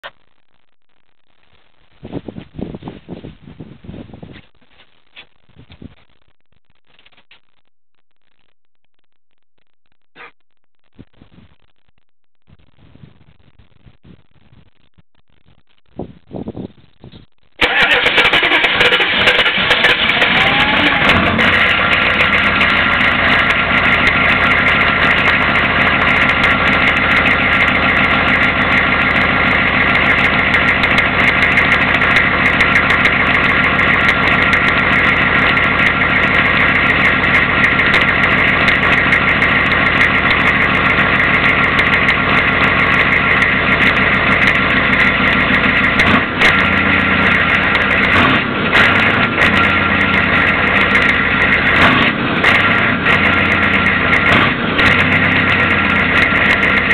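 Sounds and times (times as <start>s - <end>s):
diesel engine idling: 17.6s - 56.9s.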